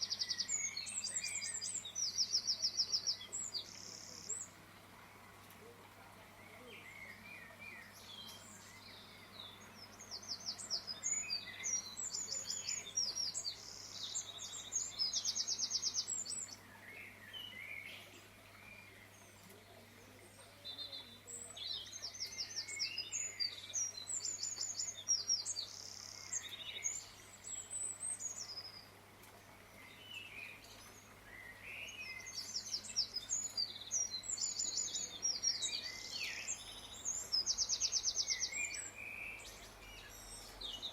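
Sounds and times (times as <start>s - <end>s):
birds chirping and singing: 0.0s - 40.9s.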